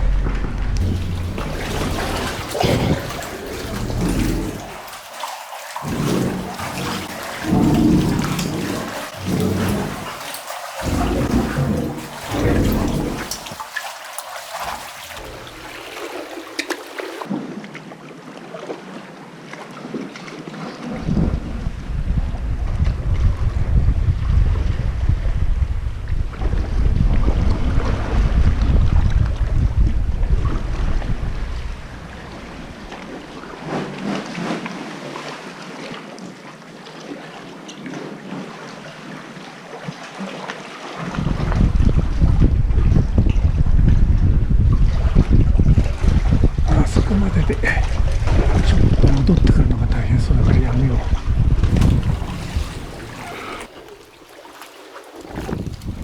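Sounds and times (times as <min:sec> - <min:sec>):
wind rumble on microphone: 0:00.0 - 0:04.8, 0:20.9 - 0:34.2, 0:41.0 - 0:53.7, 0:55.2 - 0:56.0
water lapping around kayak: 0:00.1 - 0:49.7, 0:50.4 - 0:56.0
water drips and splashes: 0:00.8 - 0:17.4, 0:51.7 - 0:56.0.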